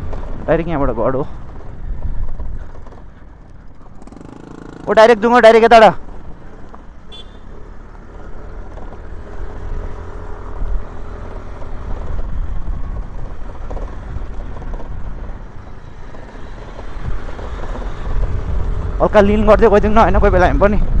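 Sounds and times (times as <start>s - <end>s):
wind rumbling on microphone: 0.0s - 4.1s, 9.6s - 16.2s, 16.8s - 21.0s
scooter engine running: 0.0s - 21.0s.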